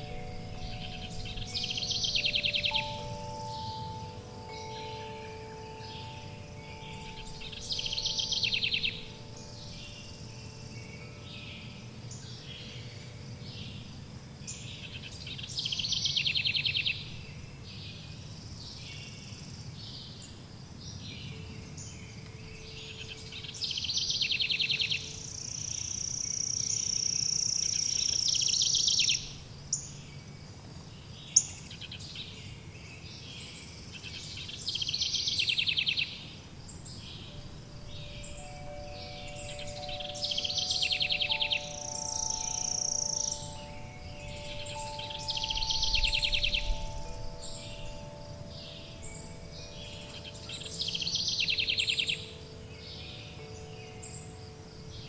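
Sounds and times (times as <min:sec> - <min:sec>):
songbird trilling: 0:00.0 - 0:13.9, 0:14.5 - 0:18.0, 0:20.9 - 0:30.0, 0:33.2 - 0:55.0
wind chime ringing: 0:00.0 - 0:14.6, 0:37.2 - 0:55.0
low background hiss: 0:00.0 - 0:55.0.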